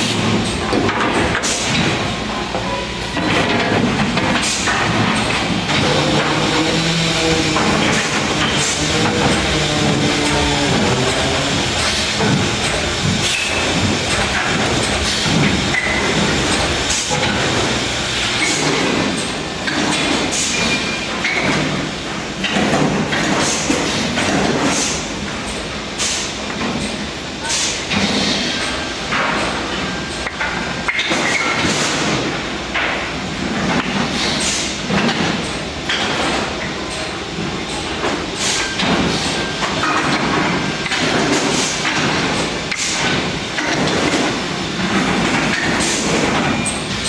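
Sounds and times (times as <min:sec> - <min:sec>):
machine cutting noise: 0:04.1 - 0:19.3
stepper motors whining: 0:05.7 - 0:14.4.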